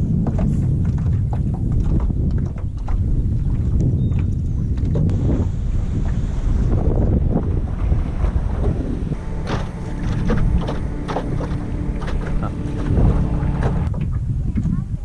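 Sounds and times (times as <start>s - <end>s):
wind buffeting microphone: 0.0s - 15.0s
steady hum: 7.6s - 13.9s.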